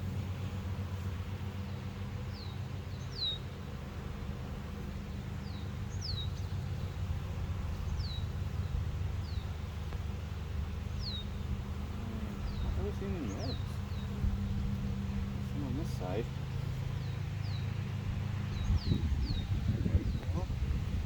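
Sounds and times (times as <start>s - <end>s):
steady low hum: 0.0s - 21.0s
bird chirping: 1.7s - 3.6s, 5.0s - 7.1s, 7.7s - 9.9s, 10.6s - 20.5s.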